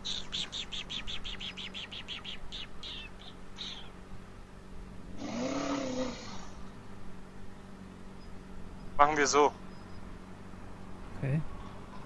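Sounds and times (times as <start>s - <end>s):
songbird trilling: 0.0s - 4.0s, 7.5s - 10.2s.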